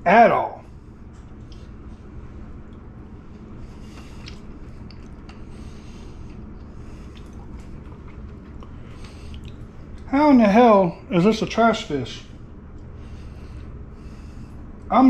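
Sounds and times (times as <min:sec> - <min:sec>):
steady low hum: 0:00.0 - 0:15.0
man chewing food: 0:00.8 - 0:10.1, 0:12.4 - 0:14.9
wet mouth sounds: 0:04.0 - 0:05.5, 0:06.2 - 0:10.1.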